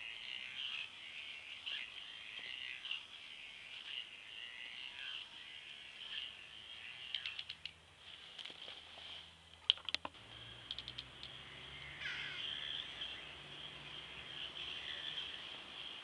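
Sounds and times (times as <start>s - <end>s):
birds chirping: 0.0s - 16.0s
rapid clicking: 7.1s - 7.8s, 9.6s - 11.4s.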